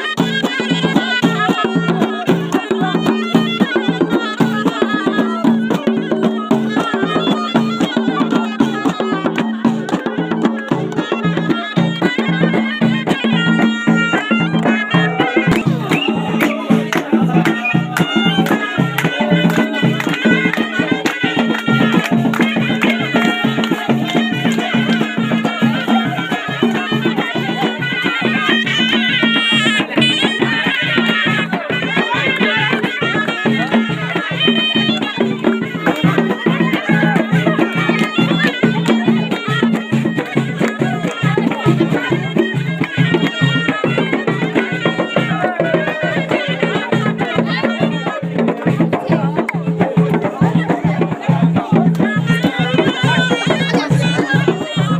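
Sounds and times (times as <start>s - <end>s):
reedy shawm melody: 0.0s - 54.9s
regular beat: 12.6s - 26.4s.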